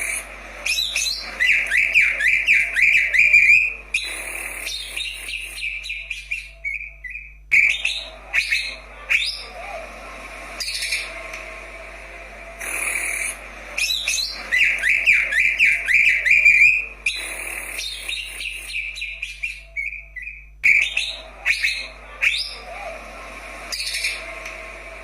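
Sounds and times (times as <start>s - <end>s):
bird chirps: 0.0s - 9.6s, 12.6s - 22.8s
bird whistling song: 0.0s - 9.8s, 12.6s - 23.0s, 23.7s - 24.5s.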